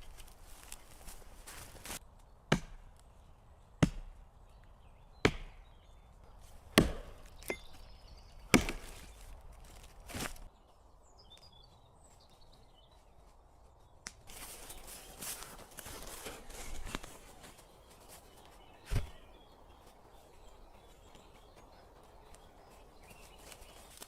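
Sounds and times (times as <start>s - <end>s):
wood chopping blows: 2.5s - 2.9s, 3.8s - 4.2s, 5.2s - 5.6s, 6.6s - 7.6s, 8.5s - 9.1s.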